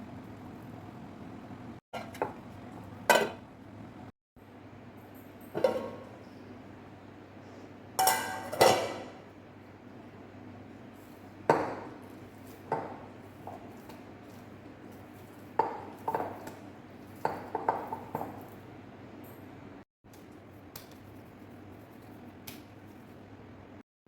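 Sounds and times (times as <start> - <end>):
dishes and utensils clinking: 5.2 - 6.3, 8.0 - 9.2.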